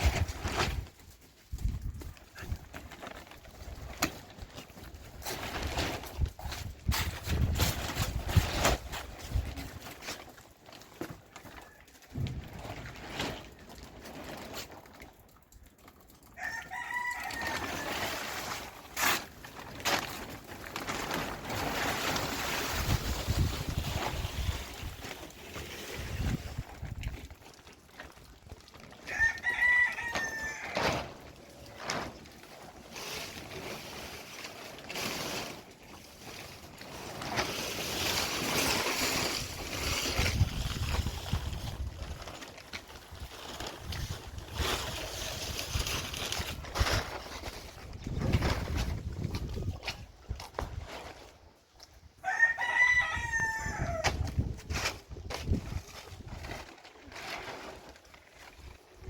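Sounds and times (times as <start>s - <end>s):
wind noise: 0.0s - 3.0s, 5.1s - 9.9s, 21.5s - 27.4s, 39.0s - 42.4s, 43.0s - 51.1s, 52.0s - 56.6s
rooster crowing: 16.4s - 18.0s, 29.1s - 30.8s, 52.2s - 54.1s
wind buffeting microphone: 47.8s - 50.8s, 53.2s - 56.5s.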